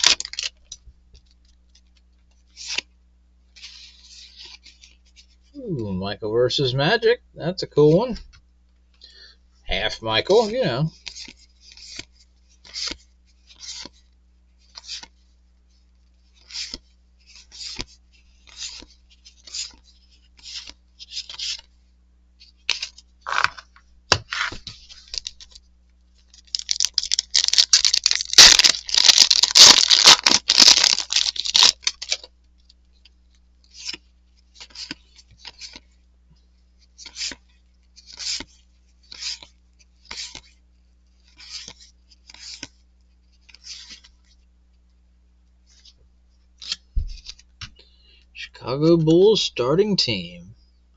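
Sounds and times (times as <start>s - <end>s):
wrapper crinkling and tearing: 0.0s - 0.7s, 22.7s - 23.7s, 26.2s - 32.3s.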